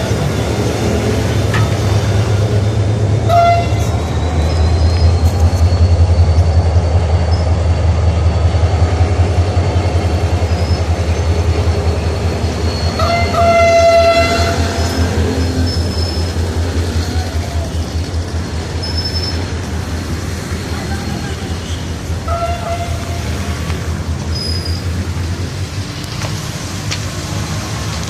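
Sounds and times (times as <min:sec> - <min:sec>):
diesel locomotive throbbing: 0:00.0 - 0:28.0
locomotive horn: 0:01.4 - 0:02.6, 0:03.2 - 0:04.6, 0:12.7 - 0:16.2, 0:20.9 - 0:23.8.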